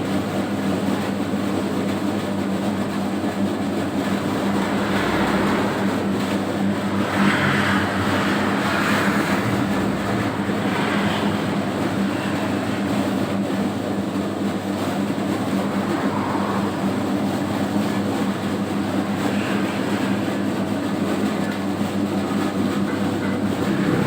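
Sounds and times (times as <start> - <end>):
dough mixer motor humming: 0.0 - 24.0
rough churning noise: 0.0 - 24.0.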